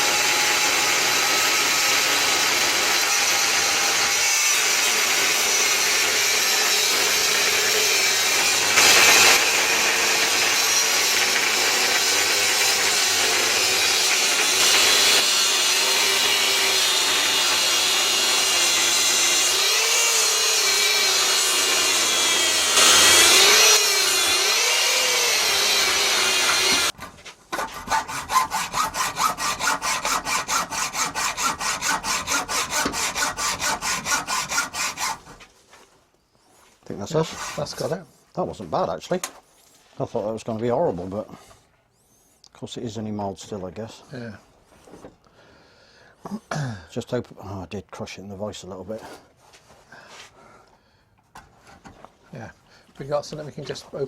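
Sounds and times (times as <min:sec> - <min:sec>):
power tool rushing with whine: 0:00.0 - 0:26.9
hacksaw cutting steel: 0:00.0 - 0:35.4.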